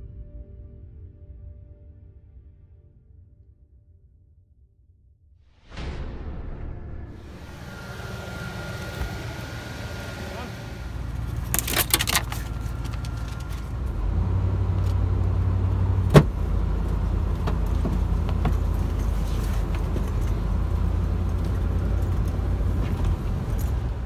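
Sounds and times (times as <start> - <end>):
vehicle engine droning: 7.1 - 24.0.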